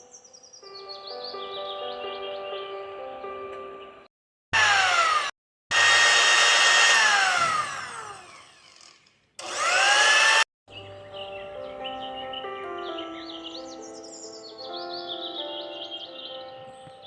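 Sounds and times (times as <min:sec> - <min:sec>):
small electric motor whirring: 0:04.6 - 0:10.5.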